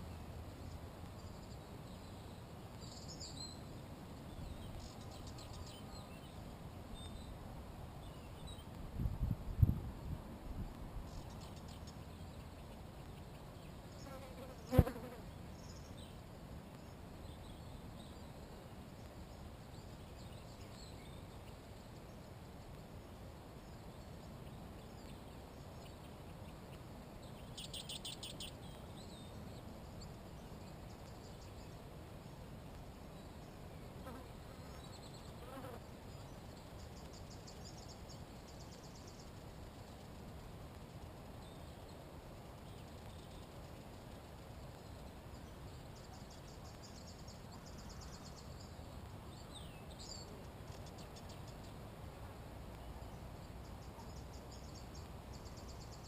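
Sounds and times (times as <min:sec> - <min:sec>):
insect buzzing: 0:13.9 - 0:15.3.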